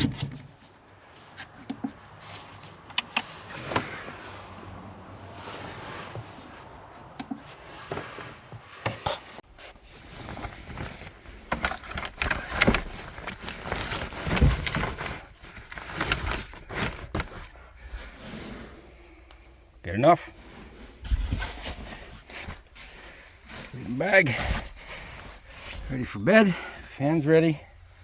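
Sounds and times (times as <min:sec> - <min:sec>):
rustling bedding: 0:09.4 - 0:28.0
gear clicks and knocks: 0:09.8 - 0:17.6.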